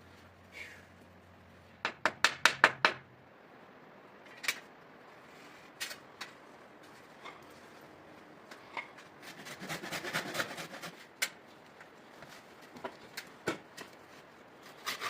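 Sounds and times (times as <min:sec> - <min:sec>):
sharp knocks: 0:01.8 - 0:03.0.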